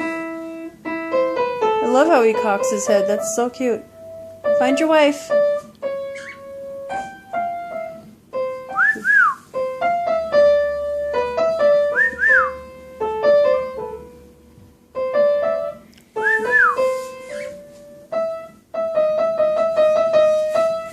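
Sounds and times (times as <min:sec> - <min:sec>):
piano music: 0:00.0 - 0:20.9
cockatiel whistling: 0:06.1 - 0:06.5, 0:08.7 - 0:09.5, 0:11.8 - 0:12.6, 0:16.2 - 0:17.6.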